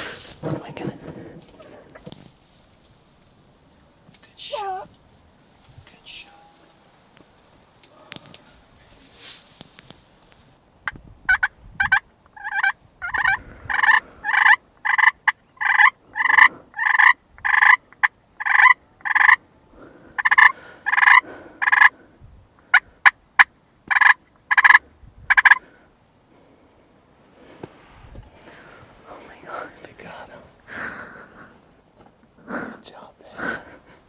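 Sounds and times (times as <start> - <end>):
wild turkey yelps: 11.3 - 19.4, 20.2 - 22.0, 22.7 - 25.7.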